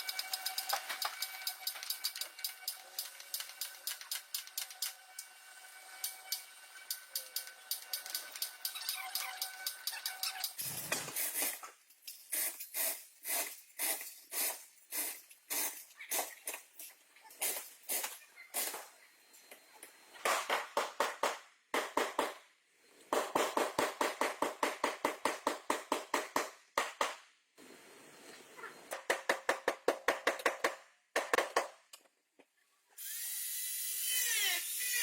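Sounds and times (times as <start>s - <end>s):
power tool whine: 0.0s - 9.8s, 33.0s - 35.0s.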